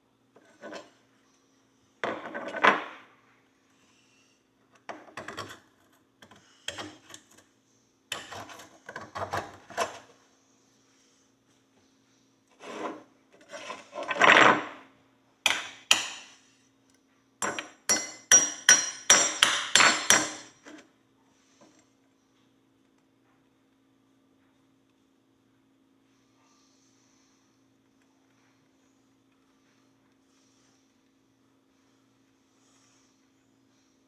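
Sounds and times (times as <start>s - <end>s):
faint steady hum: 0.0s - 34.0s
tools scraping metal horseshoe: 0.4s - 0.9s, 5.2s - 5.6s, 6.3s - 7.4s, 8.1s - 10.1s, 12.6s - 14.7s, 15.5s - 16.4s, 17.4s - 20.8s.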